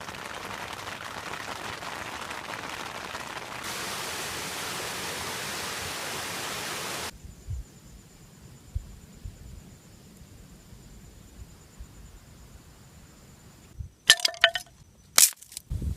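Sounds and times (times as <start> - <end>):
rain hissing: 0.0 - 7.1.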